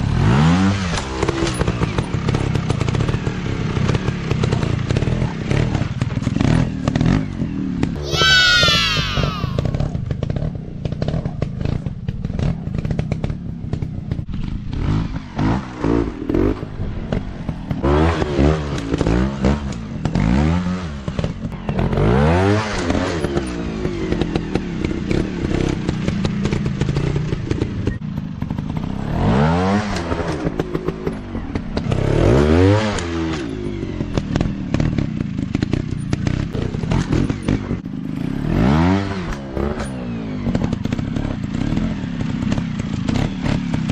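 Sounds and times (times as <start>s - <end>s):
dirt bike engines revving: 4.4s - 9.8s.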